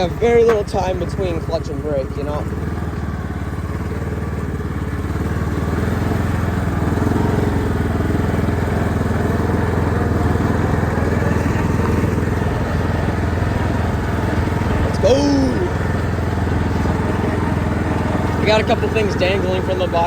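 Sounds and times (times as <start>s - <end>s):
riding lawn mower engine: 0.0s - 20.0s.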